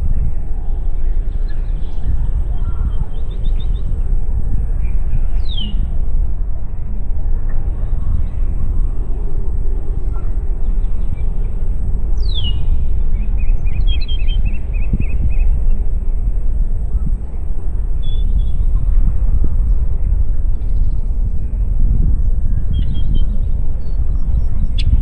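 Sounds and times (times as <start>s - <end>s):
wind rumbling on microphone: 0.0s - 25.0s
birdsong: 0.8s - 4.0s, 4.8s - 5.9s, 10.0s - 15.8s, 20.5s - 25.0s.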